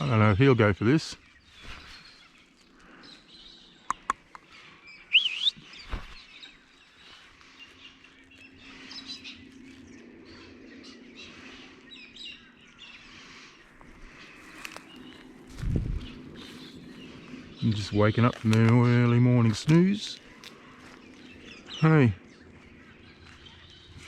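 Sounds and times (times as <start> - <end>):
birds chirping and calling: 0.0 - 24.0
sharp clicks: 3.8 - 4.5
loud rising bird call: 4.1 - 6.7.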